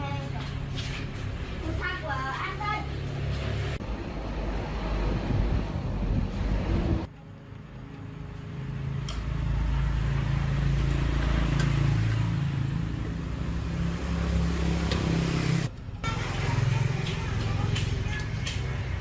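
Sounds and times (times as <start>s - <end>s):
engine humming: 7.8s - 19.0s.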